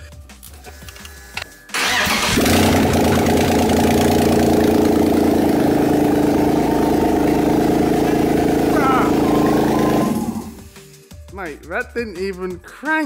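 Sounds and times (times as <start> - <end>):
car engine starting and idling: 1.7 - 10.6.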